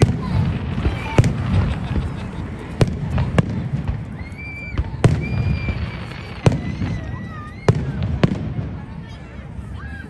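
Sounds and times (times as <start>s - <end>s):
firework bangs: 0.0s - 9.3s
high firework whistle: 4.0s - 8.0s.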